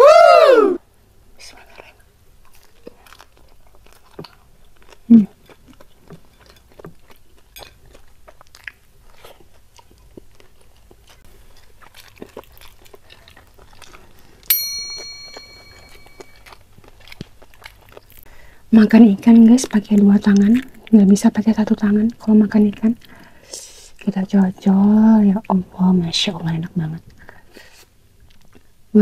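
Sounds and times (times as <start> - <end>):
crunchy chewing: 2.0 - 18.4
bell-like ding: 14.5 - 16.4.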